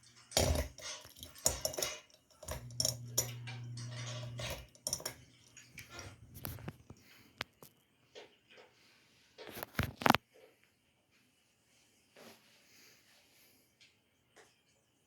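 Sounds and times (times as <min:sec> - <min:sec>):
steady low hum: 0:00.3 - 0:06.0.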